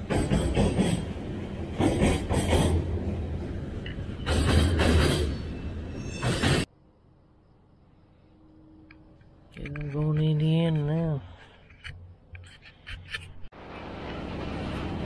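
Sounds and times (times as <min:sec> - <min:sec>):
train wheels rumbling and clattering: 0:00.0 - 0:06.7.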